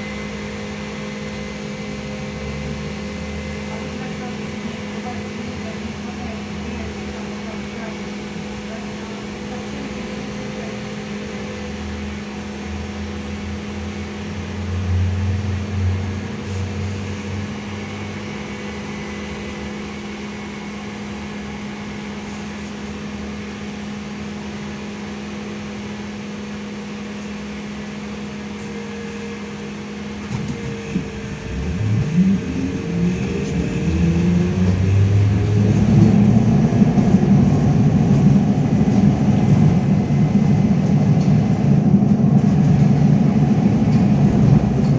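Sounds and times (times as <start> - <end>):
trolleybus electrical hum: 0.0 - 44.9
traction motor whining: 28.6 - 44.9.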